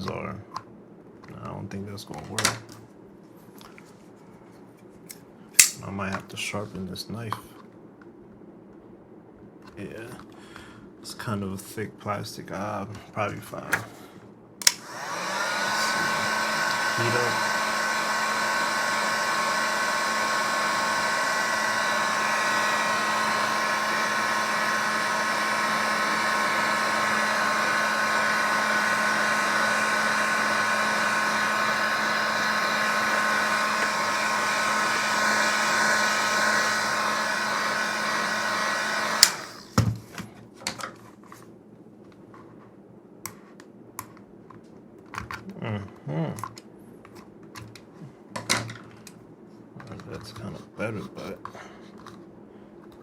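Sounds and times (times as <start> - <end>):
heat gun switch click: 5.6 - 5.8, 14.6 - 15.0, 39.2 - 39.5
heat gun whirring and whining: 5.6 - 5.8, 14.6 - 39.9.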